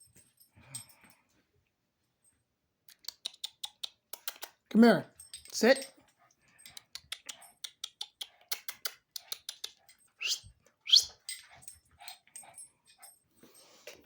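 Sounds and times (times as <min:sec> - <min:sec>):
dog claws clicking and tapping: 0:02.9 - 0:13.1.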